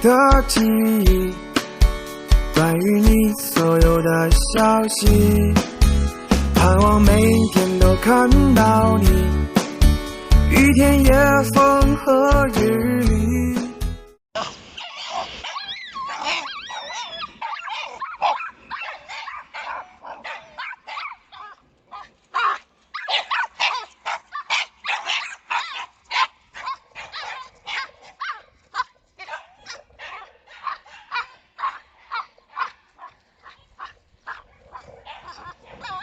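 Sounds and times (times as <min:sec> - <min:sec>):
puppy yapping high-pitched barks: 0:14.4 - 0:34.4, 0:35.1 - 0:36.0
puppy whining: 0:14.8 - 0:19.4, 0:35.1 - 0:36.0.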